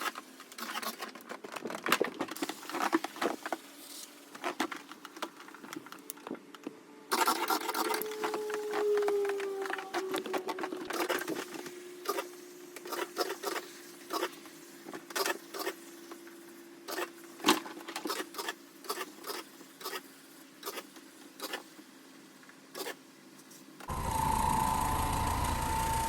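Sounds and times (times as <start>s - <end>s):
carpet-cleaning machine running: 23.9s - 26.0s
faint steady hum: 23.9s - 26.0s.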